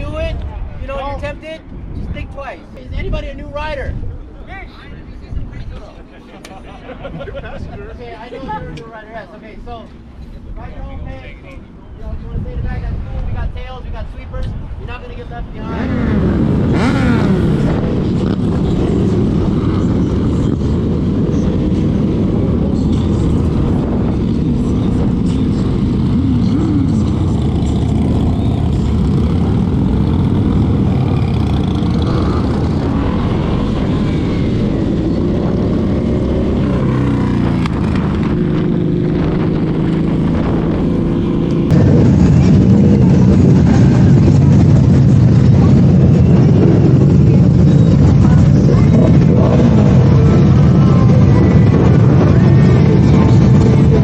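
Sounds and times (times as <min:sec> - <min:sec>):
motorcycle engines revving: 0:14.6 - 0:54.0.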